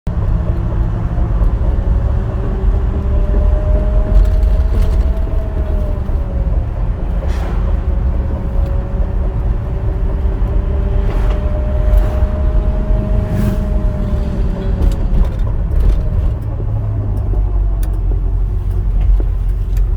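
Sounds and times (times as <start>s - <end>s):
road rumble: 0.1s - 19.9s
axle differential whining: 2.5s - 18.4s.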